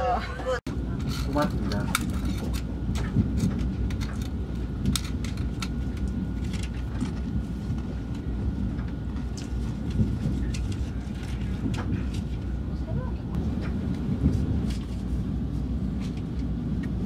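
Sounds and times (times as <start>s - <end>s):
train cabin rumble: 0.0s - 17.0s.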